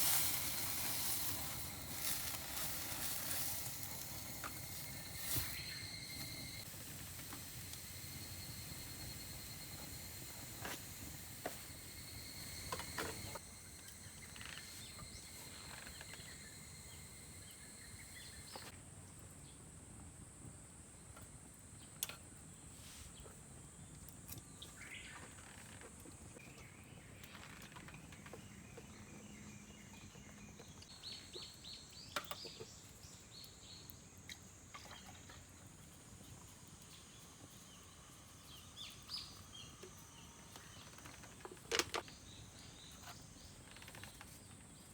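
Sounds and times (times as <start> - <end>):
high insect drone: 0.0 - 18.7, 33.1 - 44.2
low insect tone: 0.0 - 18.7, 24.5 - 44.9
bird chirps: 3.2 - 6.6.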